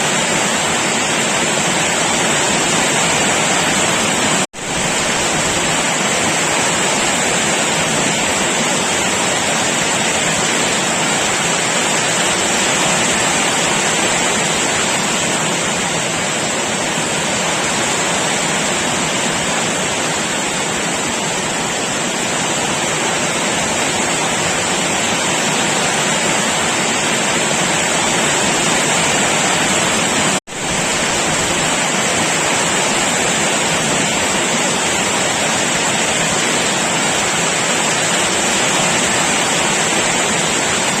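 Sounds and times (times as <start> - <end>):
heavy rain: 0.0 - 41.0.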